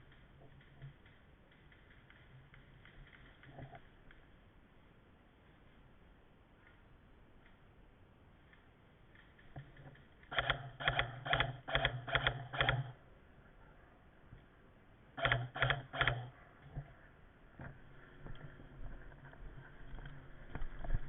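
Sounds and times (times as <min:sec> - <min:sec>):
airsoft rifle shots: 0:10.2 - 0:13.0, 0:15.2 - 0:16.4.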